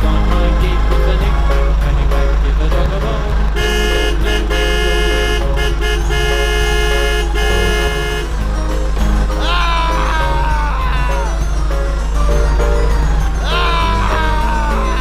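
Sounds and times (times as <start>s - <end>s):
background music with low beat: 0.0s - 15.0s
vehicle horn honking: 3.6s - 8.5s.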